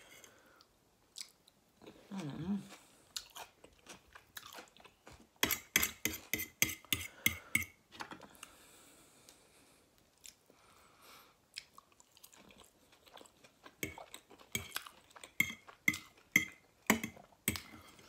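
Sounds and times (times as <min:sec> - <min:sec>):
chewing food: 0:01.1 - 0:05.4, 0:11.5 - 0:16.7.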